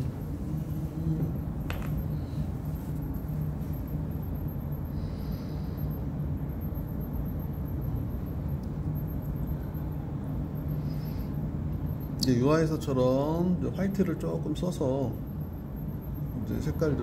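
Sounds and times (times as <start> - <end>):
faint high whine: 0.0 - 17.0
low hum and rumble: 0.0 - 17.0.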